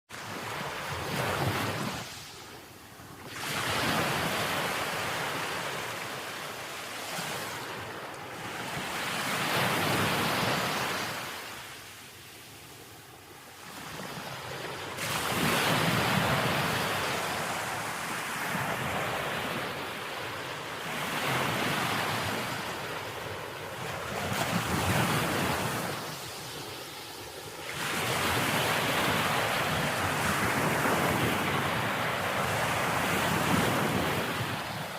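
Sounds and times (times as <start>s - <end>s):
sea waves breaking on shore: 0.1s - 34.9s.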